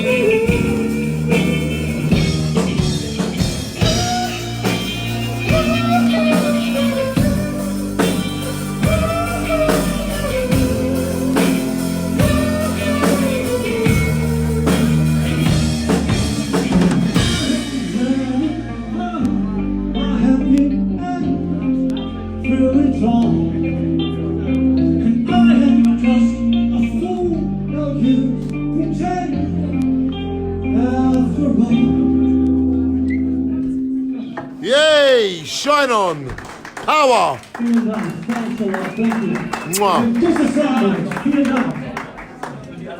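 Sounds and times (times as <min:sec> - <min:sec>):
drum kit: 0:00.0 - 0:18.4
electric guitar: 0:00.0 - 0:35.5
bass guitar: 0:00.0 - 0:36.3.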